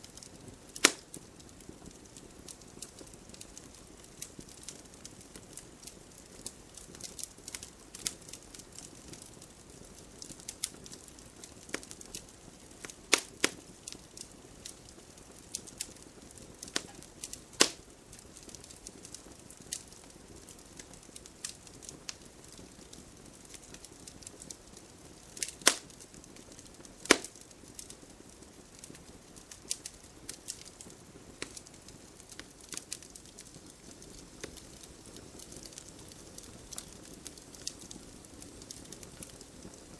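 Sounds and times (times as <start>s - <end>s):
campfire crackling: 0.0s - 39.9s
fire hiss: 0.0s - 39.9s
sharp wood snaps: 0.8s - 1.0s, 13.1s - 13.6s, 16.7s - 17.8s, 25.4s - 25.8s, 27.0s - 27.4s.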